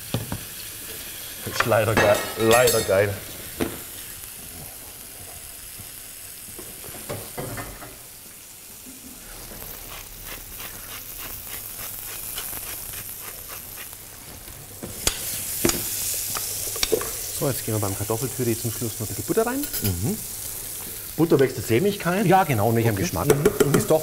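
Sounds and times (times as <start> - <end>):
vegetables sizzling in pans: 0.0 - 24.0
utensil stirring in pot: 9.4 - 14.2.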